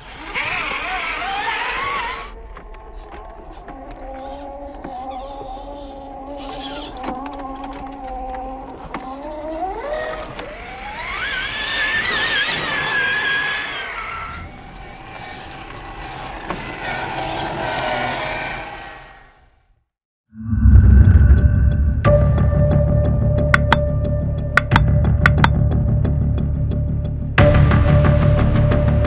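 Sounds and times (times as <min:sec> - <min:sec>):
toy truck electric motor whining: 0:00.0 - 0:02.4, 0:03.8 - 0:18.0.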